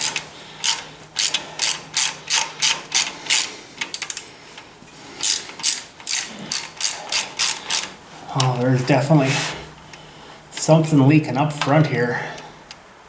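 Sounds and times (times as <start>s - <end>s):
ratchet wrench clicking: 0.0s - 4.3s, 5.2s - 8.0s.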